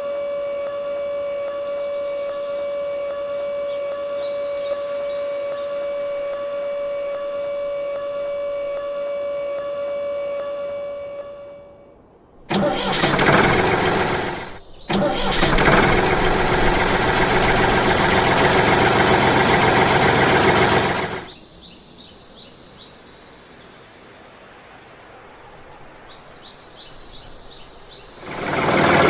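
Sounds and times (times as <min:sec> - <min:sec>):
faint bird chirps: 0:01.3 - 0:09.7
engine starting and running: 0:12.4 - 0:21.4, 0:28.0 - 0:29.0.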